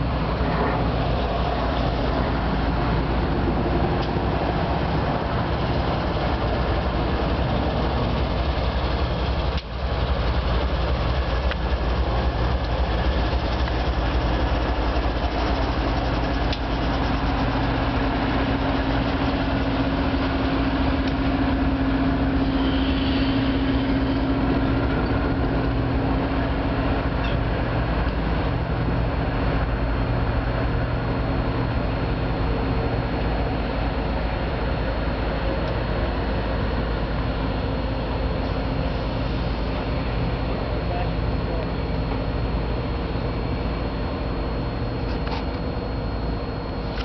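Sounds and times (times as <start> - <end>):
locomotive engine passing: 0.0 - 33.6
train cars rumbling on rails: 0.0 - 44.3
steady hum: 0.0 - 47.0.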